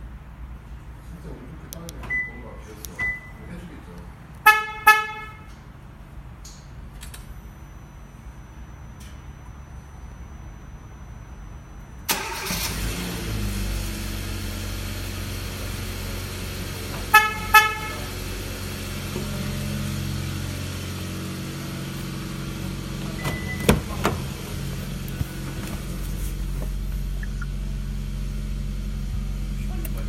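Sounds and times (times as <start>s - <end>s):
car horn chirps: 4.4s - 5.6s, 17.0s - 18.3s
car engine idling: 11.5s - 30.0s
short beep: 23.2s - 24.0s.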